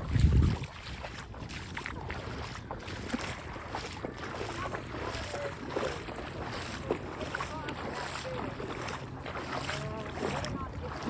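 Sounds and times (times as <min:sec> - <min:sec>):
wind on microphone: 0:00.0 - 0:07.0
shallow sea water on beach: 0:00.0 - 0:11.0.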